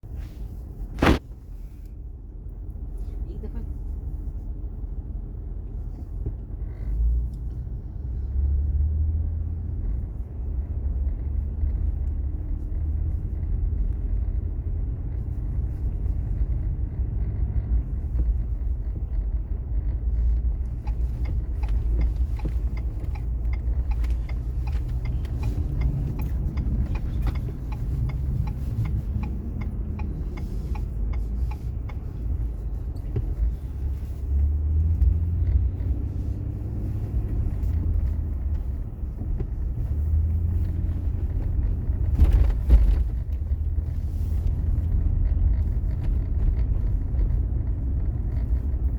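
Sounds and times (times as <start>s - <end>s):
engine and road rumble: 0.0s - 48.9s
light ticks and clicks: 9.8s - 48.9s.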